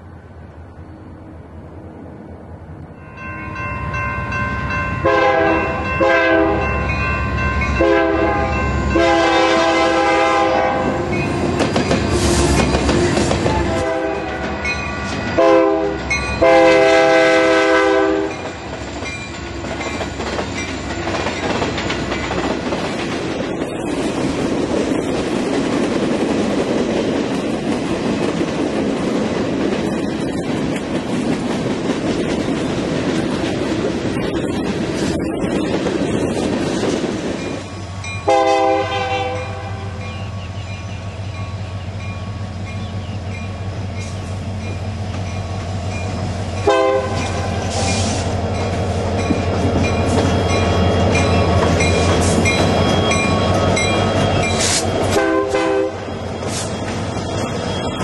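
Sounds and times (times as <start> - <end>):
freight train rumbling past: 0.0 - 58.0
locomotive air horn blasts: 5.0 - 6.8, 7.8 - 11.1, 13.5 - 14.7, 15.4 - 18.4, 38.2 - 40.0, 46.6 - 48.3, 54.5 - 56.1.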